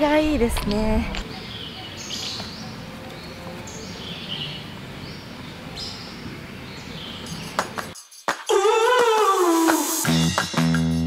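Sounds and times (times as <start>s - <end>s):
outdoor background hiss: 0.0s - 8.4s
birds calling with whistled notes: 0.8s - 8.0s.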